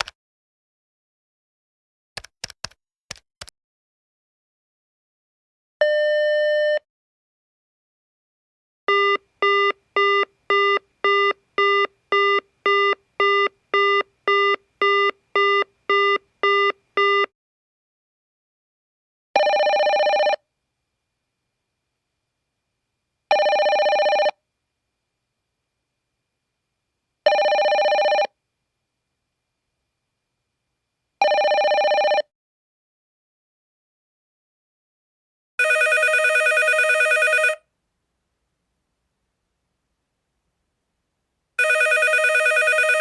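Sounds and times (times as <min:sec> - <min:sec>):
telephone beep: 0:08.9 - 0:17.3, 0:35.6 - 0:37.6, 0:41.6 - 0:43.0
telephone ringing tone: 0:08.9 - 0:17.3, 0:19.4 - 0:20.4, 0:23.3 - 0:24.4, 0:27.3 - 0:28.4, 0:31.2 - 0:32.3, 0:35.6 - 0:37.6, 0:41.6 - 0:43.0.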